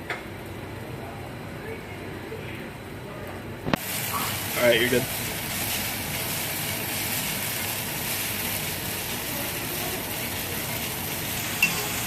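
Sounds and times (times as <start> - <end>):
food sizzling in a hot pan: 3.8 - 12.0.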